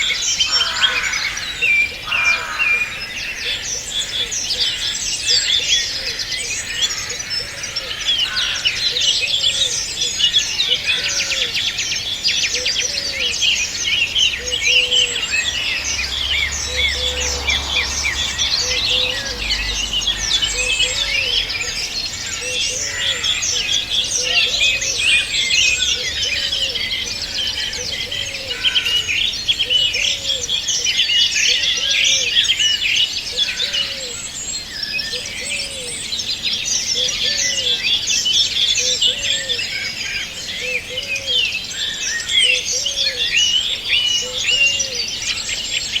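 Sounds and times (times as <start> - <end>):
small birds chirping and trilling: 0.0 - 46.0.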